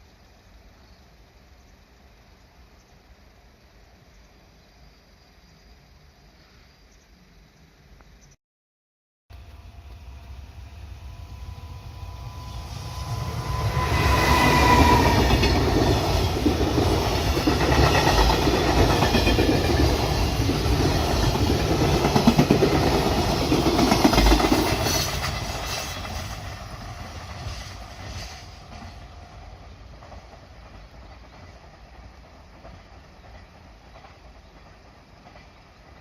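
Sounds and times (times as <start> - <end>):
freight train passing: 9.3 - 36.0.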